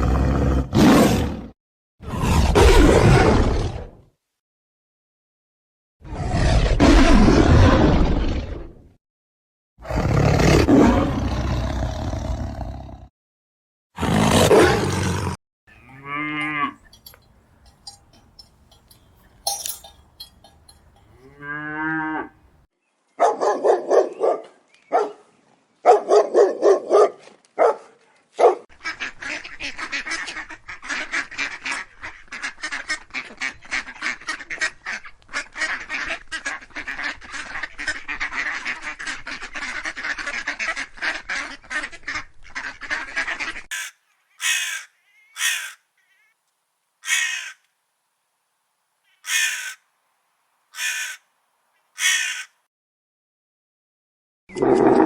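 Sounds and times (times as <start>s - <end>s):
animal calls: 15.7s - 21.4s, 35.6s - 46.4s, 47.0s - 47.6s, 49.1s - 49.8s, 50.8s - 51.2s, 52.0s - 52.6s
flock calling densely: 16.4s - 21.3s, 43.7s - 46.4s, 47.0s - 47.6s, 49.1s - 49.8s, 50.8s - 51.2s, 52.0s - 52.5s.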